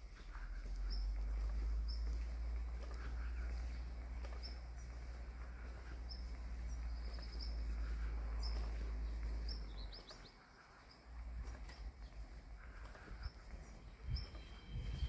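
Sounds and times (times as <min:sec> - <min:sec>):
small birds chirping: 0:00.0 - 0:15.0
low rumble: 0:11.2 - 0:15.0.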